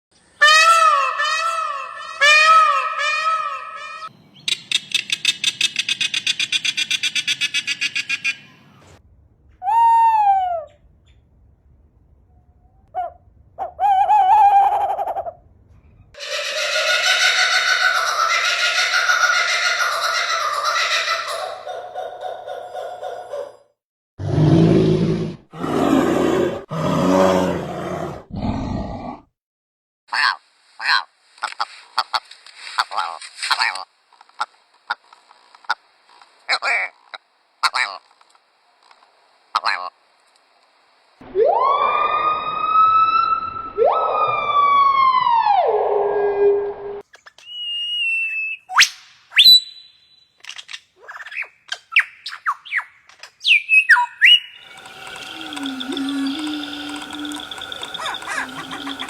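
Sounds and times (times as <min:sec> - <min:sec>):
rising and falling animal calls: 0:00.4 - 0:04.1, 0:16.2 - 0:23.6, 0:24.2 - 0:29.2, 0:41.2 - 0:46.6, 0:53.4 - 0:59.0
large animal roaring: 0:24.2 - 0:29.3, 0:54.7 - 0:59.0
short falling animal call: 0:54.2 - 0:59.0
fast rattling animal trill: 0:54.4 - 0:59.0.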